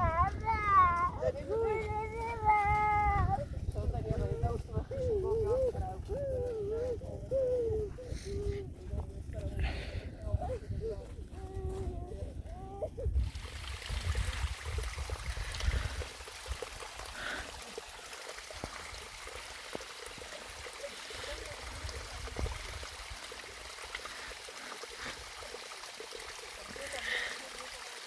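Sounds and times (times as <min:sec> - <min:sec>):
hiss of running water: 0:13.1 - 0:28.0.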